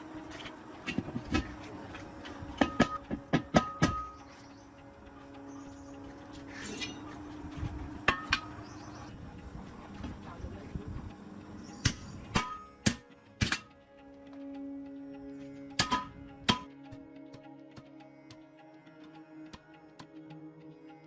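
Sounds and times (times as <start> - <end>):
background music: 0.0 - 21.0
tools clanking on metal: 0.3 - 4.2, 6.4 - 7.2.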